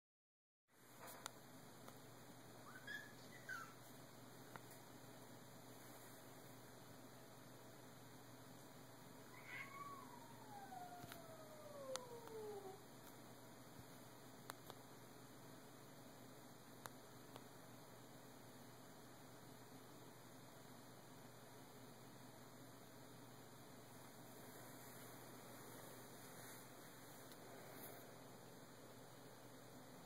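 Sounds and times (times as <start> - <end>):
cats yowling: 9.3 - 12.8
short rising cat meows: 9.3 - 12.8.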